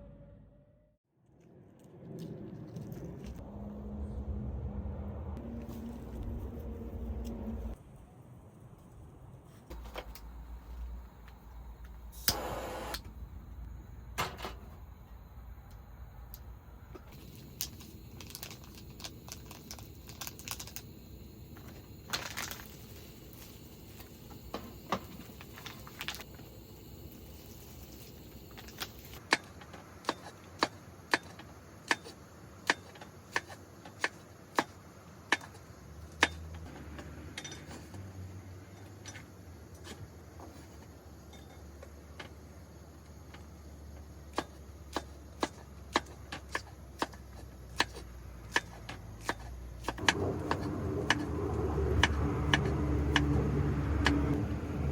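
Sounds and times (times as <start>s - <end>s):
low background rumble: 1.7s - 9.1s.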